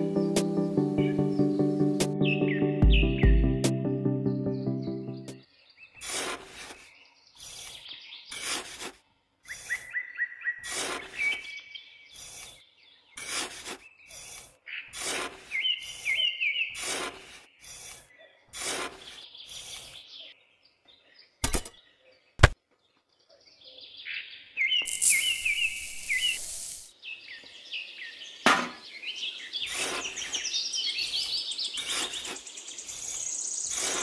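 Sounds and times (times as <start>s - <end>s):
birds chirping: 0.0s - 34.0s
sand pouring out of bucket: 6.0s - 7.7s, 8.3s - 9.0s, 10.6s - 11.4s, 13.2s - 16.0s, 16.8s - 18.0s, 18.6s - 19.9s, 24.9s - 26.9s, 29.7s - 30.4s, 31.8s - 34.0s
trowel scraping sand in tin bucket: 6.0s - 9.9s, 10.6s - 11.5s, 13.2s - 20.0s, 24.9s - 26.9s, 29.6s - 34.0s.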